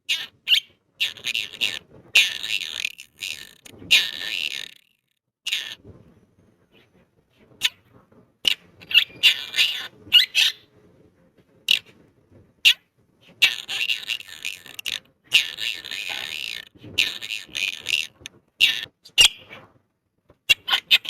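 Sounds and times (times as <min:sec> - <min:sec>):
parrot chattering: 0:00.1 - 0:04.9, 0:05.5 - 0:05.8, 0:08.5 - 0:10.6, 0:13.4 - 0:19.5, 0:20.5 - 0:21.0
parrot squawking: 0:00.1 - 0:04.9, 0:05.5 - 0:05.8, 0:08.5 - 0:10.7, 0:13.4 - 0:19.5, 0:20.5 - 0:21.0.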